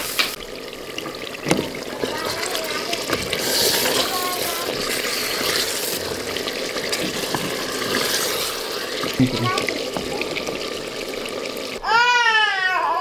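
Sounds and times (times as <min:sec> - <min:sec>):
curry sizzling in a stone pot: 0:00.0 - 0:11.8
wooden spatula stirring: 0:01.0 - 0:11.2.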